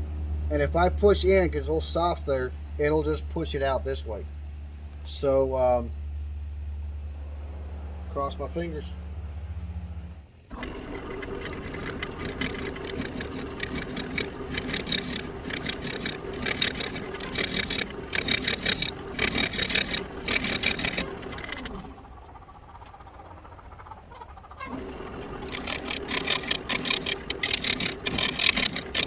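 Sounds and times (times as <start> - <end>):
turning tool cutting wood: 10.5 - 22.0, 24.7 - 29.0
wood lathe spinning: 10.5 - 22.3, 24.7 - 29.0.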